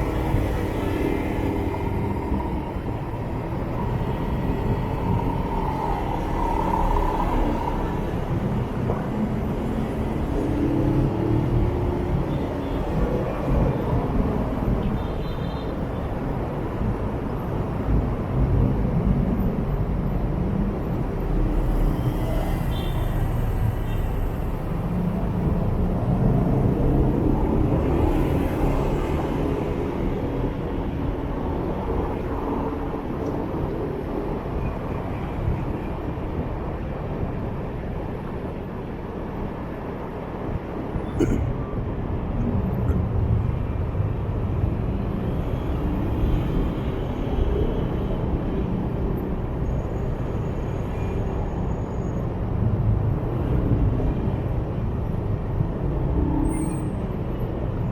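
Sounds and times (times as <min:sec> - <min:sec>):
road and wind noise: 0:00.0 - 0:57.9.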